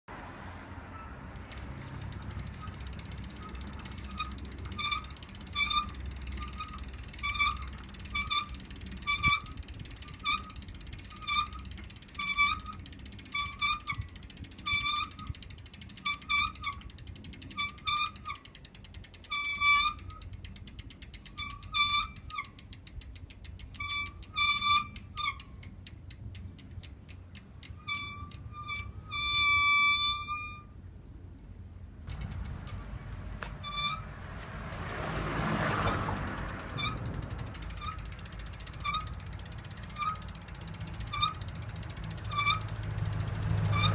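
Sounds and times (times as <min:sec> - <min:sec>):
bicycle wheel squeaking: 0:00.7 - 0:30.9, 0:31.6 - 0:43.9.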